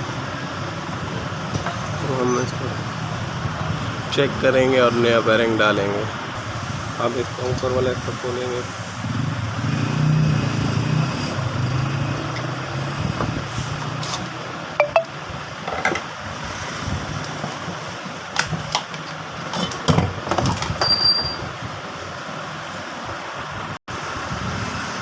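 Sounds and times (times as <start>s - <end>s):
brief high tone: 14.8s - 15.2s.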